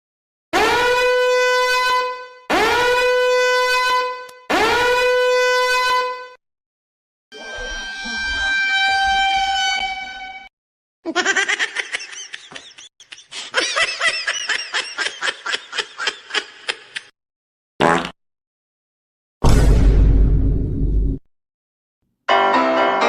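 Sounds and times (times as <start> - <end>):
wavering horn-like tone: 7.3 - 10.5
chattering laugh-like squeaks: 11.1 - 17.1.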